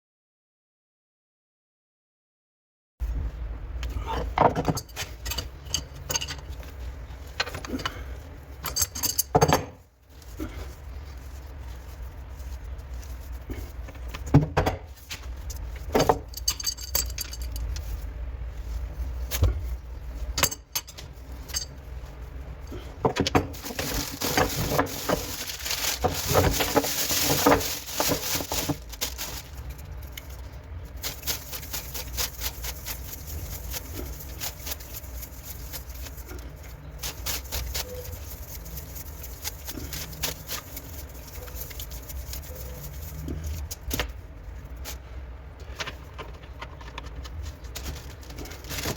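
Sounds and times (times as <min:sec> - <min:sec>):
metal tools clinking: 0:04.6 - 0:06.6, 0:08.6 - 0:09.7, 0:16.0 - 0:17.8, 0:20.4 - 0:21.8.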